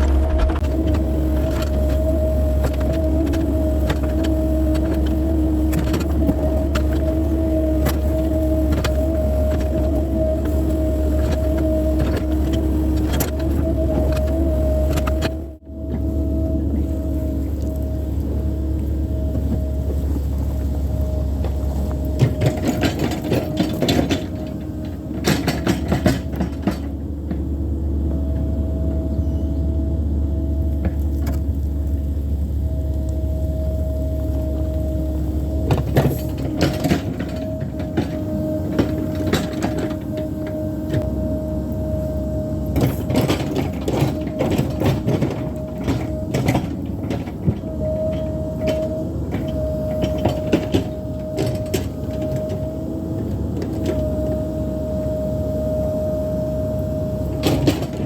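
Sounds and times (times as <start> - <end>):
excavator engine whining: 0.0 - 58.0
clanking and knocking: 21.4 - 29.0.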